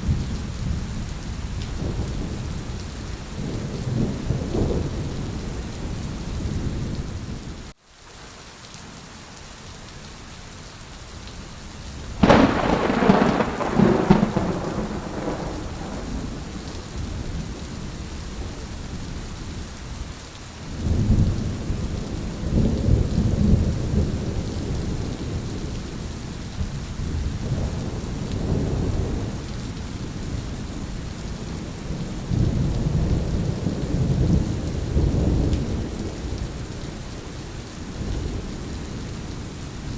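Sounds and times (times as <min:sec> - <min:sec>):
low rolling thunder: 0:00.0 - 0:07.5, 0:12.2 - 0:20.0, 0:20.7 - 0:39.9
heavy rain: 0:00.0 - 0:39.9
loud thunderclap: 0:12.2 - 0:17.5.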